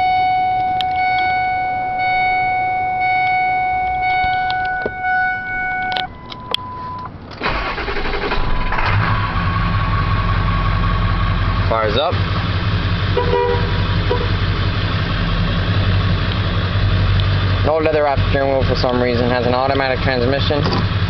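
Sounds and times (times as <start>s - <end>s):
steady electronic tones: 0.0s - 7.1s
diesel engine starting and idling: 0.0s - 21.0s.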